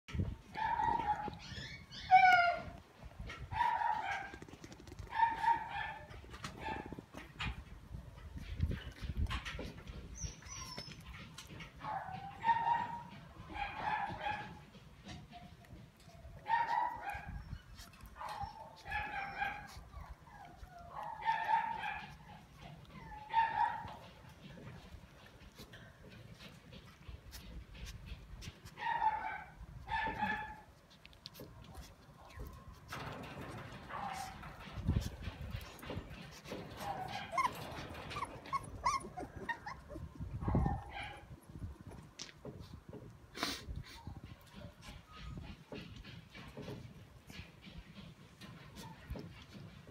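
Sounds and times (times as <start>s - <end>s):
dog whimpering and yipping: 0.5s - 2.8s, 10.0s - 24.1s, 36.5s - 41.3s, 43.8s - 45.8s
dog whining high-pitched: 0.6s - 2.8s, 10.2s - 11.2s, 36.9s - 40.9s.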